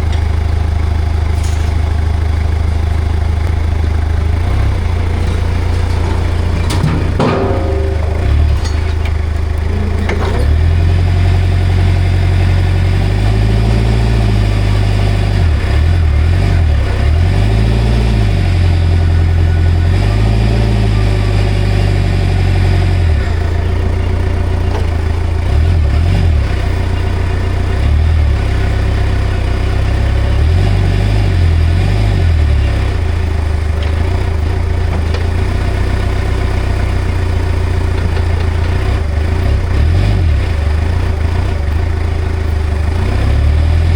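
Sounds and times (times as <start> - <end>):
forklift engine revving: 0.0 - 43.9.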